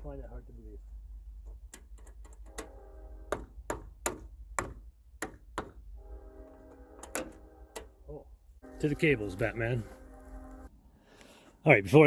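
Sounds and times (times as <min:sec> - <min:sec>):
sharp irregular clicks and taps: 0:01.4 - 0:02.7
background music chord: 0:08.6 - 0:10.7.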